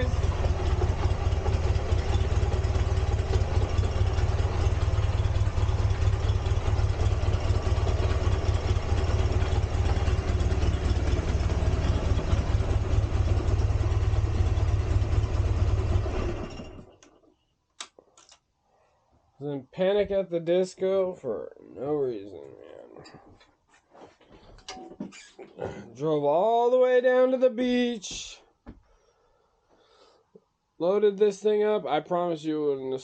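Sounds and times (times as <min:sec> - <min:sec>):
engine running with deep hum: 0:00.0 - 0:17.2.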